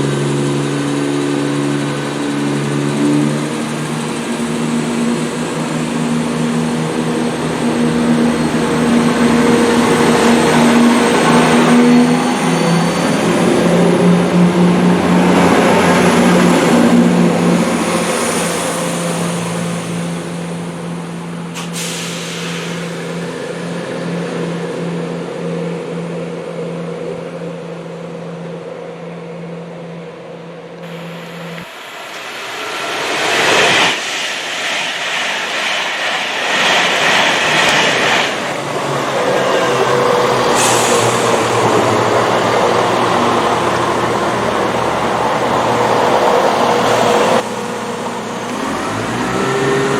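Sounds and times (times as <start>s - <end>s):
train engine hum: 0.0s - 49.9s
loud rushing noise: 30.8s - 47.5s.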